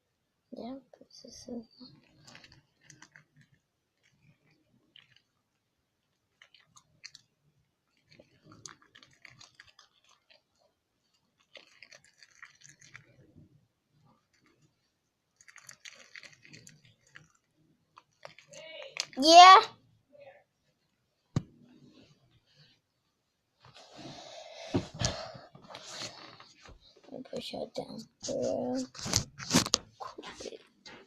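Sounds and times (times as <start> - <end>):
slime squishing and crackling: 11.4 - 13.3, 15.4 - 19.5.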